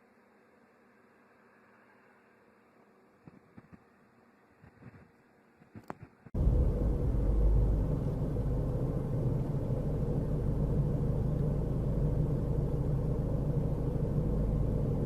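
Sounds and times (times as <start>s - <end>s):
car driving rumble: 6.4s - 15.0s.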